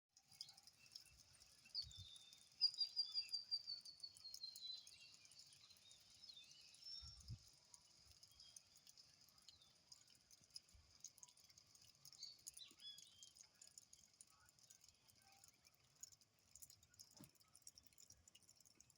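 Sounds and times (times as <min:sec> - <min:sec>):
light rain patter: 0:00.1 - 0:18.9
birds singing: 0:01.7 - 0:10.0, 0:12.0 - 0:13.9.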